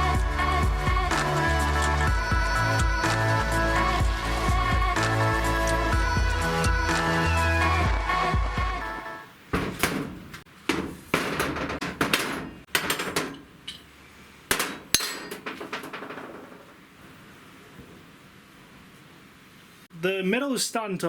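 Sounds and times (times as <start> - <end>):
tools clanking on metal bike parts: 9.6 - 16.8.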